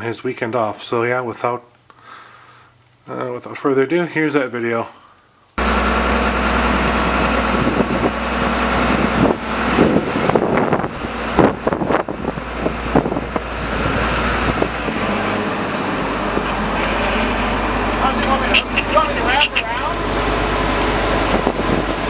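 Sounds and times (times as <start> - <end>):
vehicle engine running: 5.6 - 22.0.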